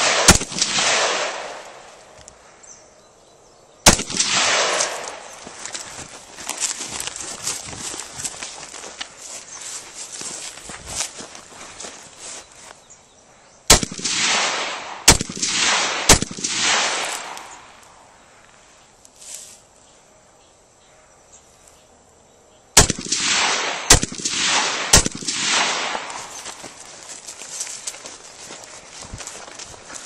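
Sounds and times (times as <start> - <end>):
rifle shots with echo: 0.0 - 2.1, 3.8 - 5.4, 13.7 - 17.8, 22.8 - 26.6.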